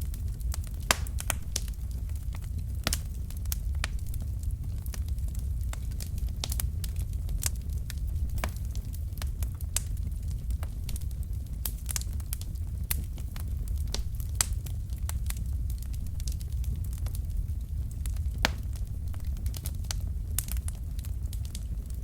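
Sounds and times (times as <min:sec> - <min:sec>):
low rumble of flames: 0:00.0 - 0:22.0
logs popping and snapping: 0:18.4 - 0:19.6.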